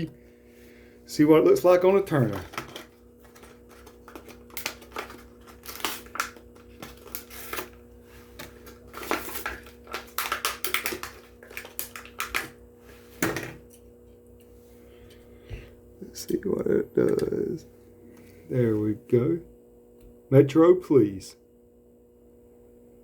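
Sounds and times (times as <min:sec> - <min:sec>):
steady low hum: 0:00.0 - 0:23.0
plastic packaging crinkling: 0:01.8 - 0:12.6.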